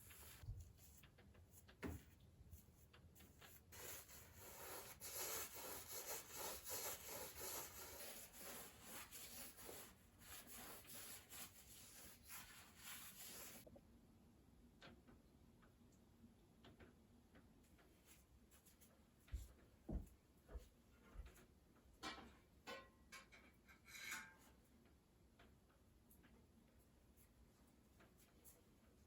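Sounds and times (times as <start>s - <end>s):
scrubbing a hard surface: 0.0s - 0.9s, 3.2s - 13.6s.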